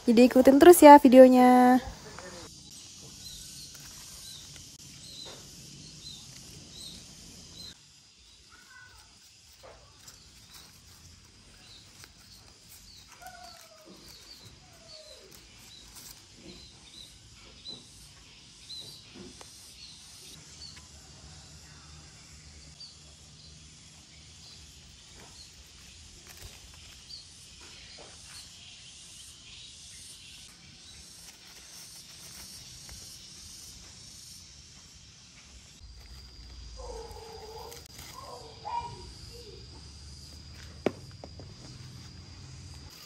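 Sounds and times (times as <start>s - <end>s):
bird chirping: 36.1s - 40.4s.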